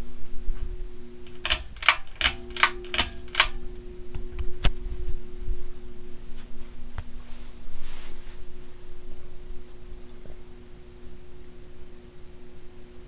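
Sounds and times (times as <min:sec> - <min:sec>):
ceiling fan motor humming: 0:00.0 - 0:13.0
pull-chain switch clicks: 0:01.2 - 0:04.8.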